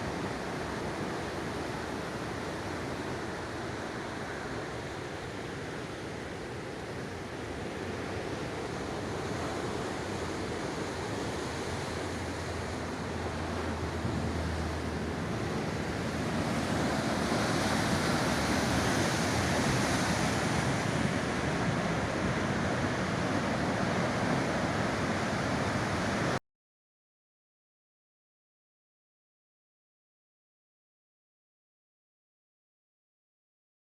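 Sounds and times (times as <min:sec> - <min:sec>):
sea surf washing ashore: 0:00.0 - 0:26.4
wind: 0:00.0 - 0:26.4.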